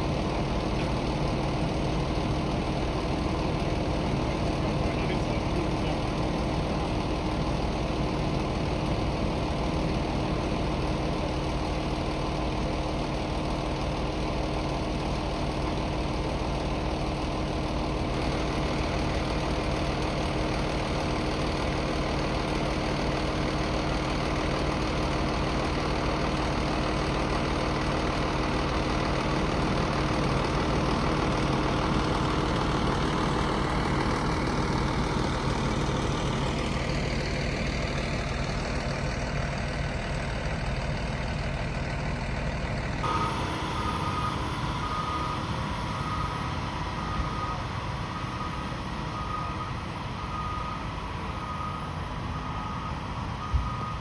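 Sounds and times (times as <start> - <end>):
heavy truck engine running: 0.0 - 54.0
reversing alarm beeping: 43.0 - 54.0.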